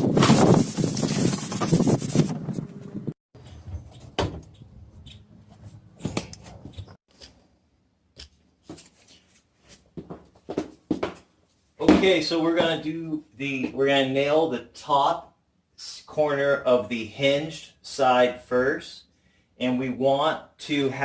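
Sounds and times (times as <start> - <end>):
hand sanding: 0.1 - 2.3.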